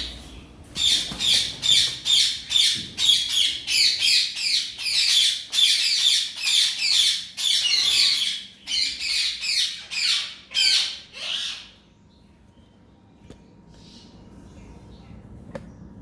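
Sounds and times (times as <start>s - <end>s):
parrot squawking: 0.8s - 11.8s.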